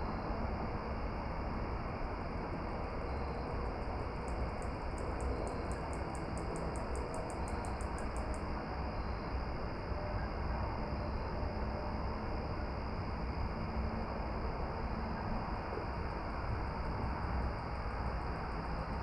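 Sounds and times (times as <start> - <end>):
insect chirping: 2.9 - 9.3.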